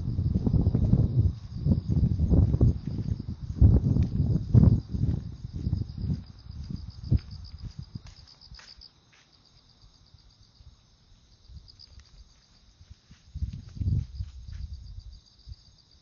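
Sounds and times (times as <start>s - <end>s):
insects chirping in high trill: 0.0s - 16.0s
footsteps thudding: 3.9s - 9.3s.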